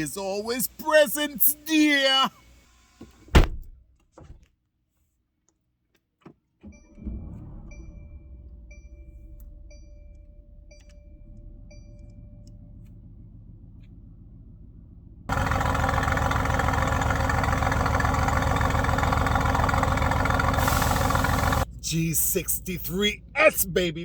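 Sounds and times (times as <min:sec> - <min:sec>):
faint low engine rumble: 0:07.0 - 0:24.0
car chime ticking: 0:15.3 - 0:21.6
loud engine running: 0:15.3 - 0:21.7.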